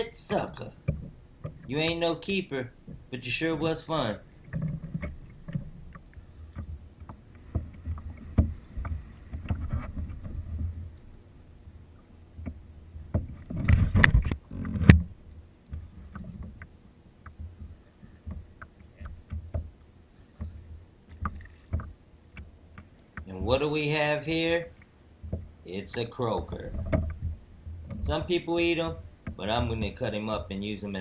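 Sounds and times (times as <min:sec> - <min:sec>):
clicks and knocks on plastic kayak: 0:00.8 - 0:01.7, 0:04.4 - 0:11.0, 0:12.4 - 0:23.3, 0:25.2 - 0:25.6.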